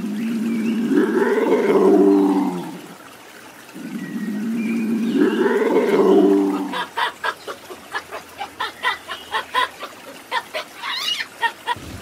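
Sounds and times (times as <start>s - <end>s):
animal drawn-out call: 3.8s - 9.7s.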